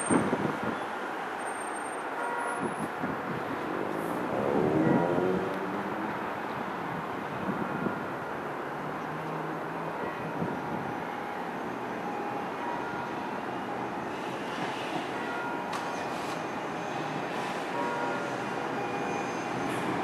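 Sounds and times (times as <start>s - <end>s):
faint train whine: 10.8s - 20.0s.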